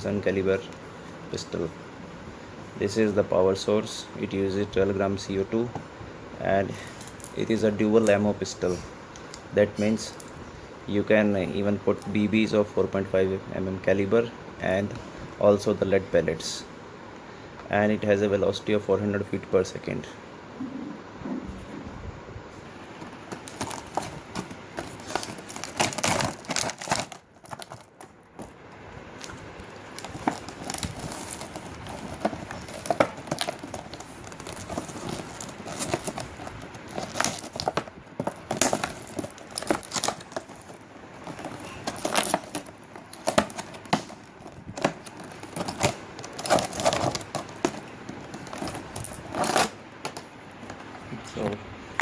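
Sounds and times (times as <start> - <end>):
packaging rustling: 22.7 - 51.0.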